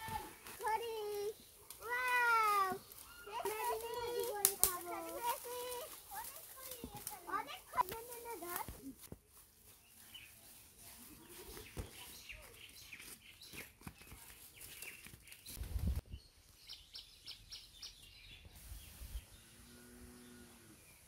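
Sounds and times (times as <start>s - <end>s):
birds chirping: 0.0s - 8.6s, 9.6s - 21.0s
small clicks and rustles: 2.9s - 9.2s.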